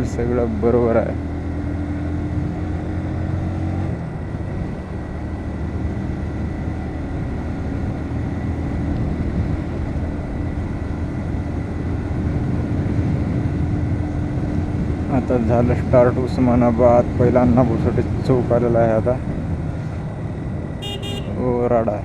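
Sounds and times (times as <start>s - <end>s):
motorcycle engine running: 20.8s - 21.6s.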